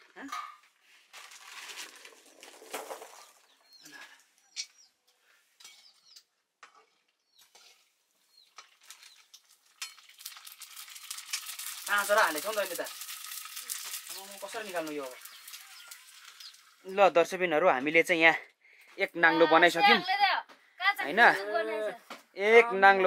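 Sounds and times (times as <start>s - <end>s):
metal ladle scraping and tapping: 4.5s - 7.9s
puris sizzling in hot oil: 5.6s - 17.4s.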